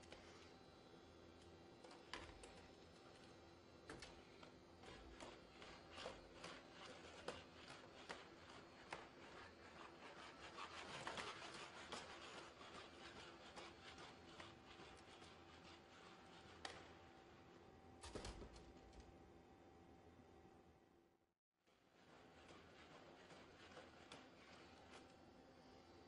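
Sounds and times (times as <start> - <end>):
rubbing scraping noise: 4.8 - 17.0, 22.0 - 25.0.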